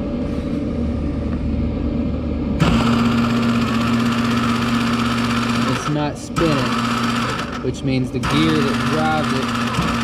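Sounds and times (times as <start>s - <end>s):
welder low hum: 0.0s - 10.0s
wire-feed motor buzz and whir: 2.6s - 10.0s.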